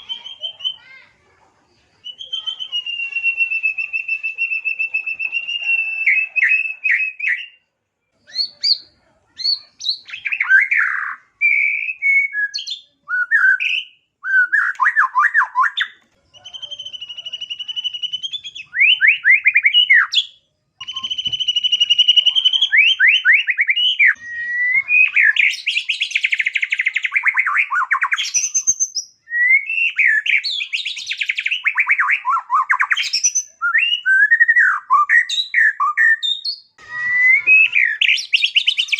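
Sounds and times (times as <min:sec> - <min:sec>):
songbird singing varied song: 0:08.2 - 0:38.9.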